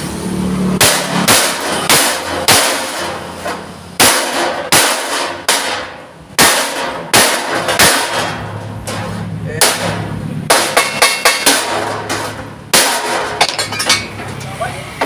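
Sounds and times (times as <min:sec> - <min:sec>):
hammer striking steel plate: 0:00.7 - 0:14.3.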